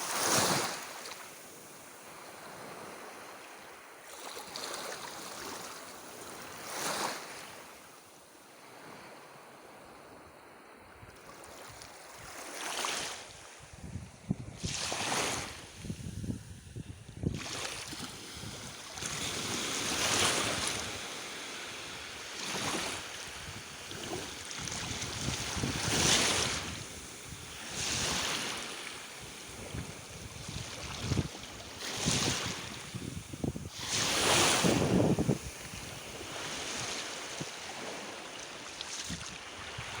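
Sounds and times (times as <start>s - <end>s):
small waves washing on shore: 0.0s - 40.0s
wind buffeting microphone: 13.6s - 19.3s, 23.3s - 28.6s, 29.2s - 38.0s.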